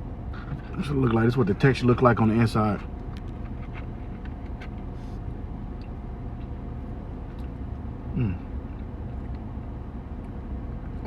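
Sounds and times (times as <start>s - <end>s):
steady low rumble: 0.0s - 11.0s
man humming mm: 8.1s - 8.5s.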